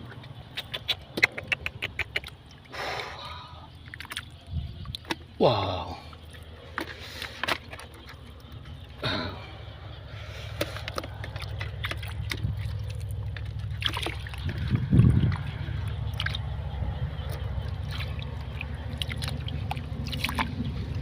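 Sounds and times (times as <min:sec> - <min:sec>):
water sloshing and splashing: 0:00.0 - 0:21.0
low rumble: 0:08.0 - 0:21.0.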